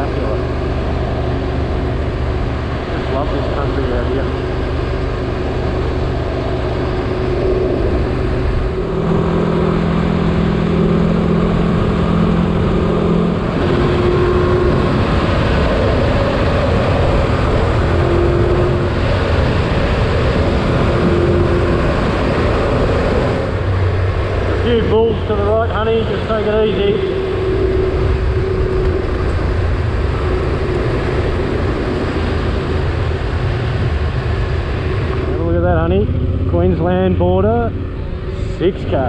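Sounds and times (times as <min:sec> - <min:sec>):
motorcycle engine running: 0:00.0 - 0:39.0
road and wind noise: 0:00.0 - 0:39.0.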